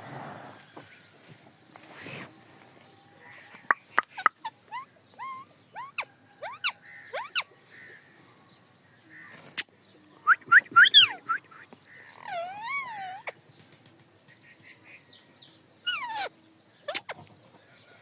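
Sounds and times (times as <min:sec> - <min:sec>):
parrot whistled calls: 0:10.5 - 0:11.4.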